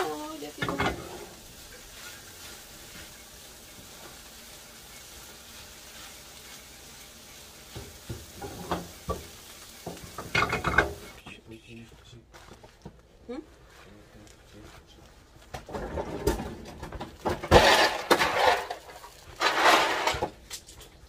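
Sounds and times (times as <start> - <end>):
spatula stirring and scraping: 0.0 - 11.2
eggs sizzling in frying pan: 0.0 - 11.3, 15.2 - 21.0.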